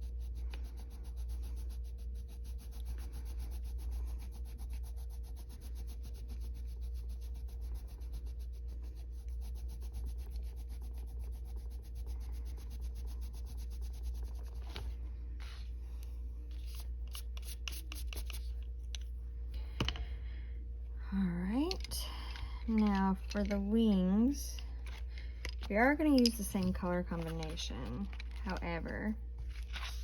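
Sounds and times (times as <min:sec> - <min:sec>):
coloured pencil rubbing on paper: 0:00.0 - 0:15.7, 0:16.5 - 0:18.5.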